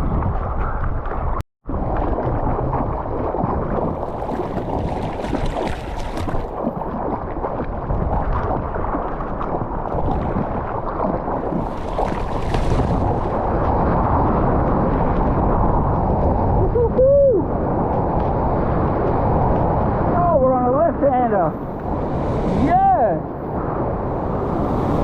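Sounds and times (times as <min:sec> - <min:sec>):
wind buffeting microphone: 0:00.0 - 0:25.0
seawater splashing: 0:01.7 - 0:15.3.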